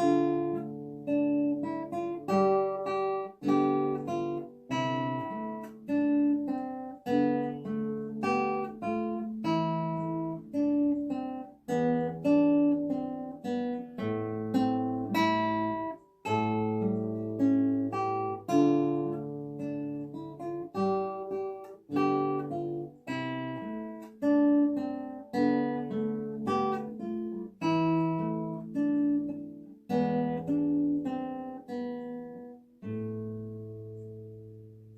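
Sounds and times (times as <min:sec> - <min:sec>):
solo classical guitar: 0:00.0 - 0:34.9.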